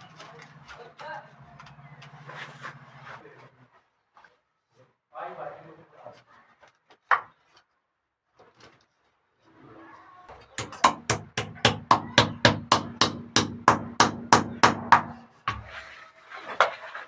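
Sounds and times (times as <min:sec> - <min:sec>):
hammer striking rapidly: 0:10.6 - 0:15.8.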